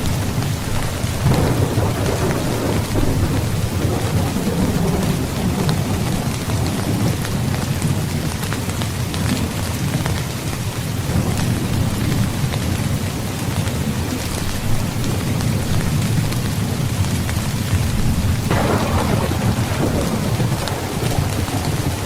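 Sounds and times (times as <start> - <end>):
low rolling thunder: 0.0 - 8.4, 17.6 - 22.0
heavy rain falling: 0.0 - 22.0.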